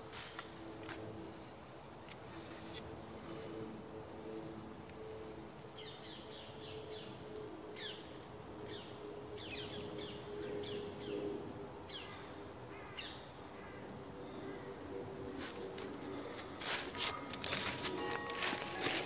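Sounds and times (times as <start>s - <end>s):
faint steady hum: 0.0s - 19.0s
wild birds chirping: 5.7s - 19.0s.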